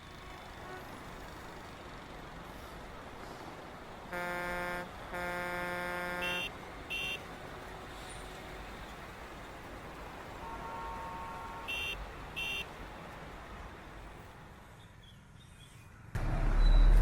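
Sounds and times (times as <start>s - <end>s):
road traffic: 0.0s - 17.0s
vehicle horn honking: 4.1s - 7.2s, 10.4s - 12.7s
short high-pitched horn beeps: 4.2s - 7.2s.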